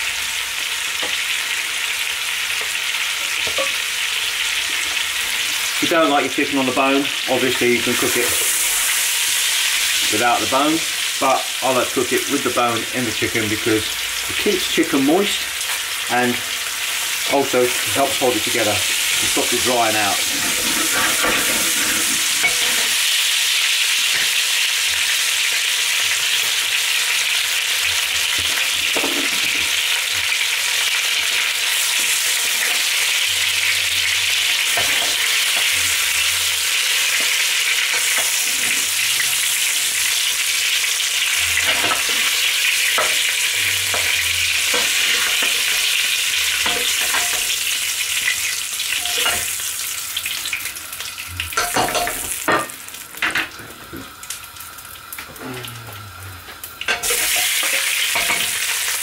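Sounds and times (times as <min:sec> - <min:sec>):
chicken sizzling in oil: 0:00.0 - 0:59.0
spoon scraping against pot: 0:20.2 - 0:22.9.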